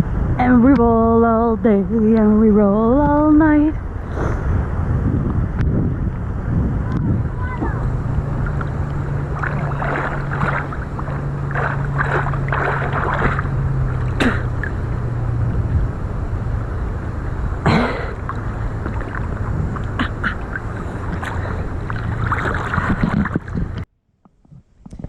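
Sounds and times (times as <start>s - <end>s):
steady low hum: 0.0s - 25.0s
water and wind noise: 0.0s - 25.0s
water splashes: 6.9s - 15.3s, 16.8s - 23.9s.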